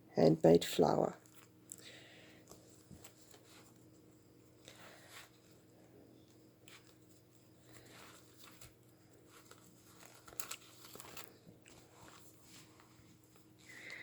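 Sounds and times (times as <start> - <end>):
faint steady hum: 0.0 - 14.0
paper pages rustling: 2.4 - 4.1, 6.6 - 14.0.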